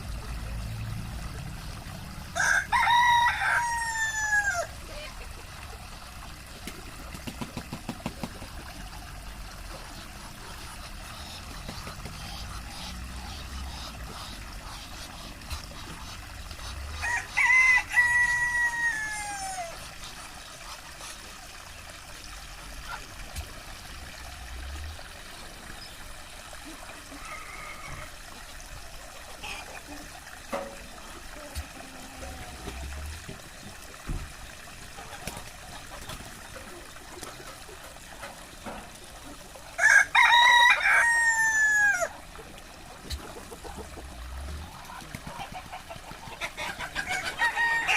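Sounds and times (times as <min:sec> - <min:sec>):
rooster crowing: 0:02.4 - 0:04.7, 0:17.0 - 0:19.7, 0:39.8 - 0:42.1, 0:47.0 - 0:47.9
chickens clucking: 0:09.6 - 0:21.4, 0:25.2 - 0:47.9.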